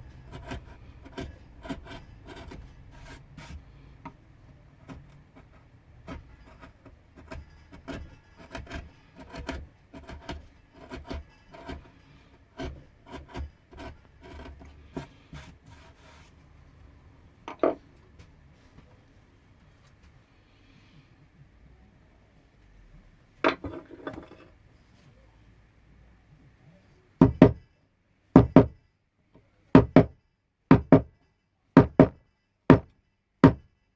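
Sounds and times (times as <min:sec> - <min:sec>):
blade scraping and cutting wood: 0:00.1 - 0:03.9, 0:04.9 - 0:16.3.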